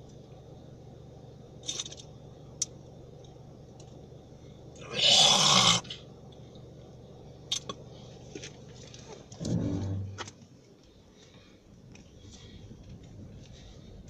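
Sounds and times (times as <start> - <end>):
car engine humming: 7.9 - 10.6.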